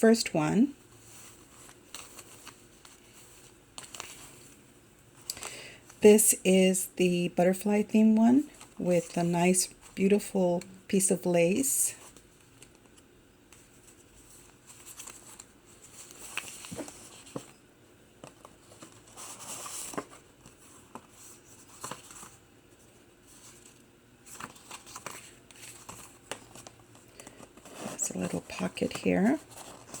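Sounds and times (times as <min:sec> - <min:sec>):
pages being flipped: 0:01.2 - 0:04.6, 0:12.1 - 0:17.6, 0:18.2 - 0:30.0
paper rustling: 0:12.1 - 0:17.6, 0:18.2 - 0:30.0.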